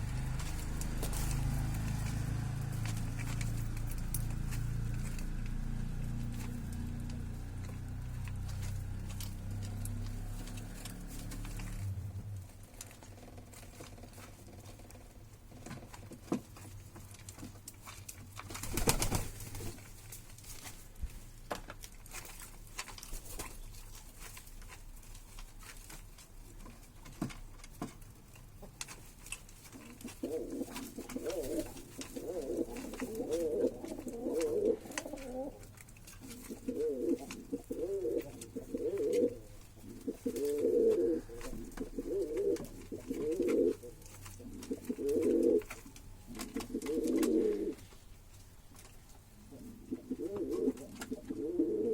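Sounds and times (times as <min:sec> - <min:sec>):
pigeons cooing: 0:30.0 - 0:47.9, 0:49.4 - 0:51.9.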